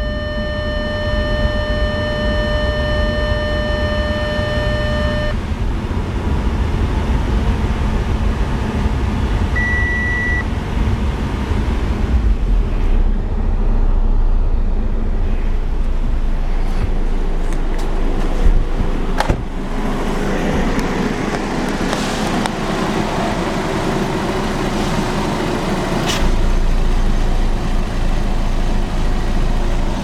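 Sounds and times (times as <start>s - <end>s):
short high beep: 0.0s - 5.4s, 9.6s - 10.4s
steady beep tone: 0.0s - 5.4s, 9.6s - 10.4s
car engine running steadily: 0.0s - 30.0s.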